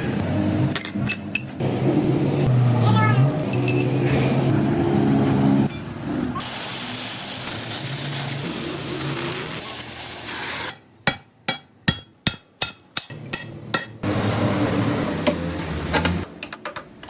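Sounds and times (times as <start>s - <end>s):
harsh hiss: 6.4s - 10.7s.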